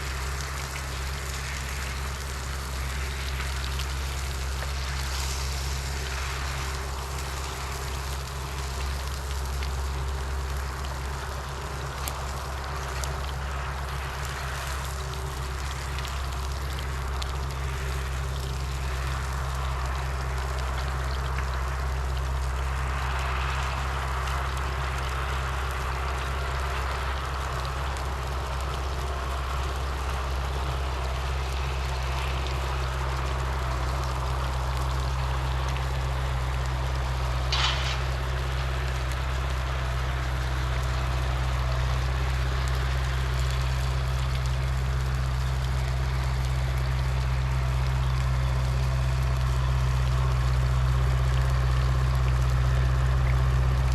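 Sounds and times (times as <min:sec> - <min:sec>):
engine droning: 0:00.0 - 0:53.9.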